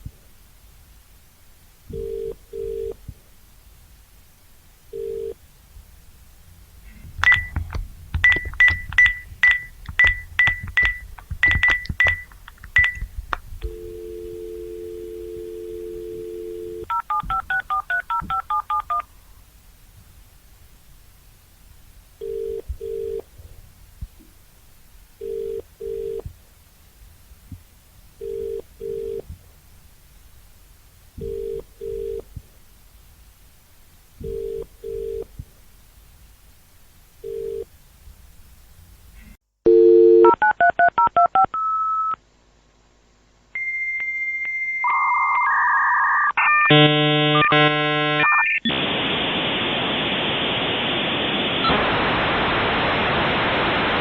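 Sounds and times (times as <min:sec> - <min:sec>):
modem hiss: 0:00.0 - 0:39.4, 0:40.2 - 0:54.0
telephone ringback tone: 0:02.0 - 0:03.0, 0:05.0 - 0:05.4, 0:08.2 - 0:13.0, 0:13.7 - 0:19.0
dialing beeps: 0:07.2 - 0:07.6, 0:08.2 - 0:14.9, 0:16.4 - 0:19.0, 0:39.7 - 0:42.2
steady electronic tones: 0:07.2 - 0:17.0, 0:46.4 - 0:52.0.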